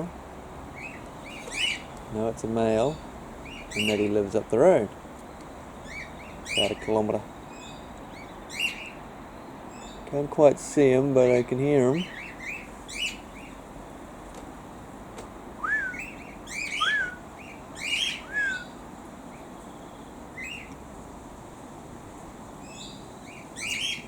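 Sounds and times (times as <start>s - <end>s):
cockatiel chirps: 15.6s - 18.8s
cockatiel whistled calls: 15.6s - 18.8s.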